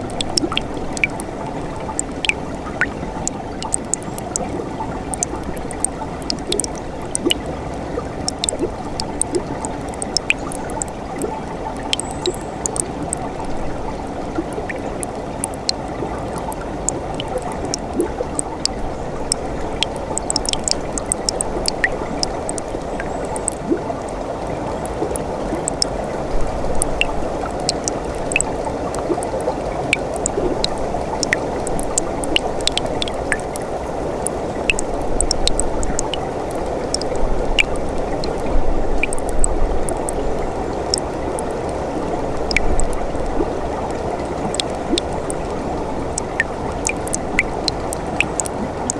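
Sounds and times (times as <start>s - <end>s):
stream burbling: 0.0s - 48.9s
water splashes and drips: 0.0s - 48.9s.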